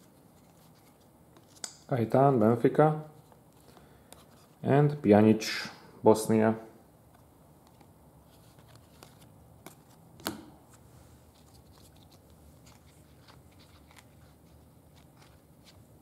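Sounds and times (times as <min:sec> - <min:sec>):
trading cards rustling: 0:07.7 - 0:16.0.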